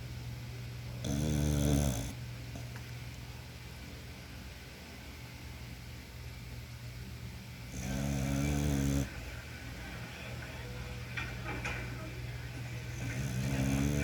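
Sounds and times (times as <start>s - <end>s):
dog snoring: 1.0s - 2.7s, 7.7s - 9.1s, 12.9s - 14.0s.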